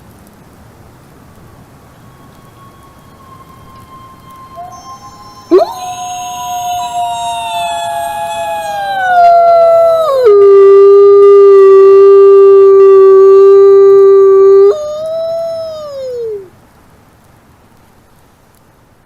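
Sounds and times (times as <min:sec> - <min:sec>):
wolf howling: 0:02.0 - 0:16.5.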